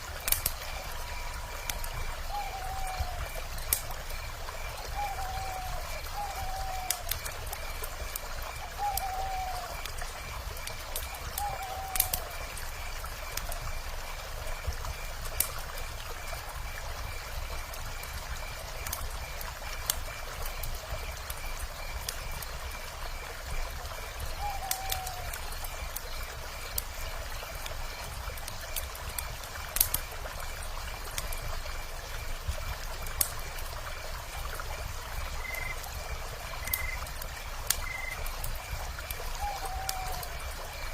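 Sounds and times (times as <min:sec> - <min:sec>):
campfire crackling and popping: 0:00.0 - 0:40.9
faint high chirp: 0:35.4 - 0:35.8, 0:36.6 - 0:37.1, 0:37.8 - 0:38.3.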